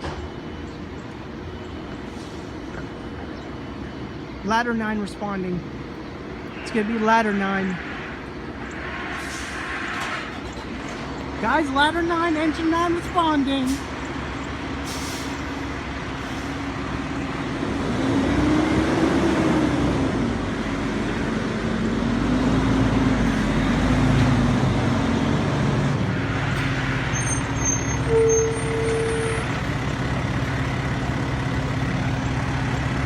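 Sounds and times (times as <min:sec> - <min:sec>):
fire truck engines running: 0:00.0 - 0:33.0
short steady horn tone: 0:27.6 - 0:29.5.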